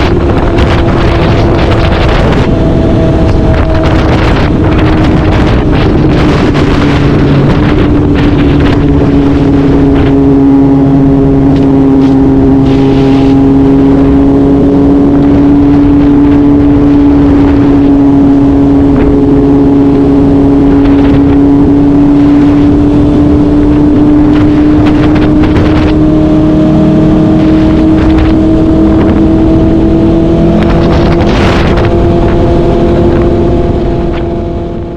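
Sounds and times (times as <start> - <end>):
motorcycle engine at speed: 0.0 - 34.9
wind noise: 0.0 - 34.9.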